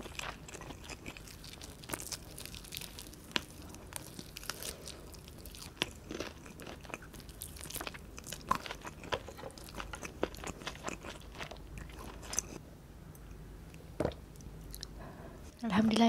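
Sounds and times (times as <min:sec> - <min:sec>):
crisp chewing crunches: 0:00.0 - 0:12.6.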